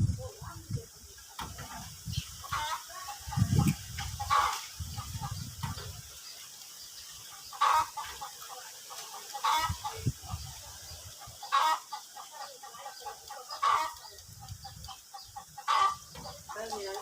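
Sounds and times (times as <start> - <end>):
bird calling: 2.2 - 17.0.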